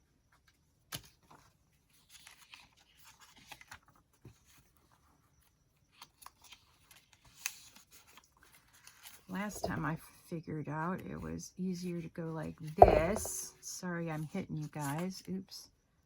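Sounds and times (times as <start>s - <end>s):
paper rustling: 1.2s - 4.4s
dull thump: 12.8s - 13.4s
sharp tap: 12.8s - 13.4s.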